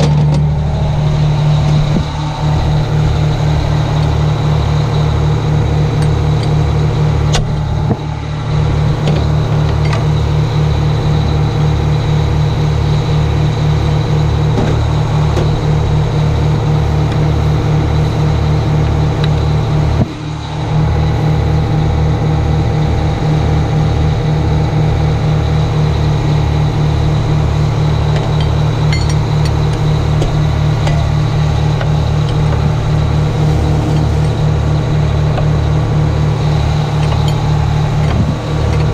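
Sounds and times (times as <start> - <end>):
diesel engine throbbing: 0.0 - 38.9.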